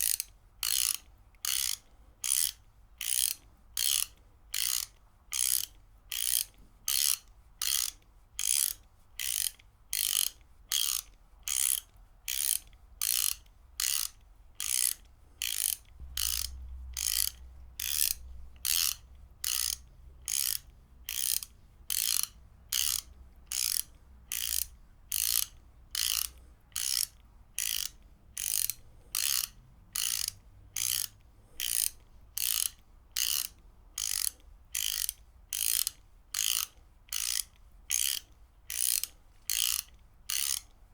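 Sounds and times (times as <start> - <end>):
ratchet wrench clicking: 0.0 - 40.7.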